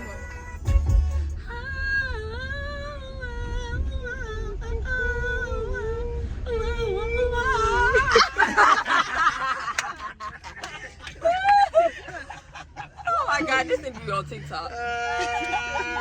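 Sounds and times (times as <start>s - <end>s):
backing track bass: 0.0s - 8.4s
laughter: 7.9s - 13.5s, 14.9s - 16.0s.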